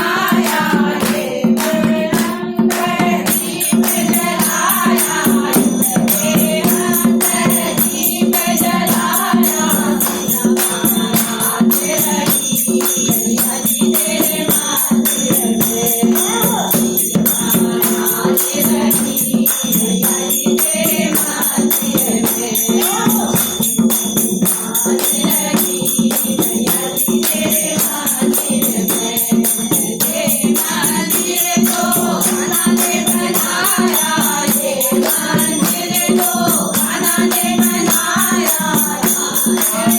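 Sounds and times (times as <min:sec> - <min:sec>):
group devotional singing: 0:00.0 - 0:39.9
rattling percussion: 0:00.0 - 0:39.9.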